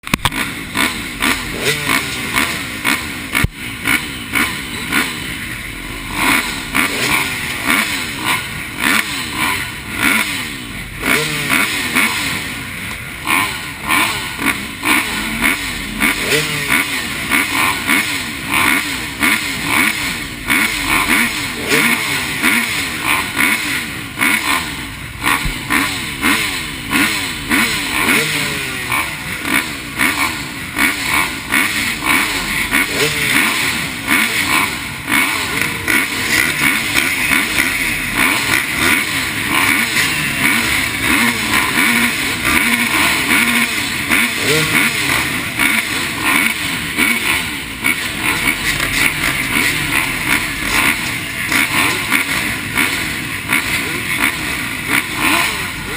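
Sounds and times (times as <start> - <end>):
dirt bike engines revving: 0.0 - 55.9.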